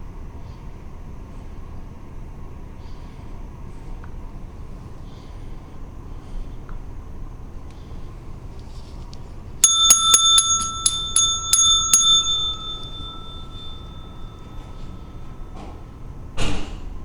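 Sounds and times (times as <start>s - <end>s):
small metal bell struck rapidly: 9.6s - 14.7s.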